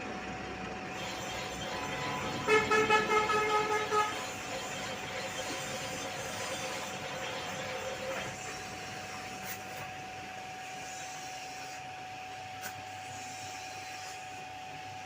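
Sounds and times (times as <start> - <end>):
electric machine whining: 0.0 - 11.8.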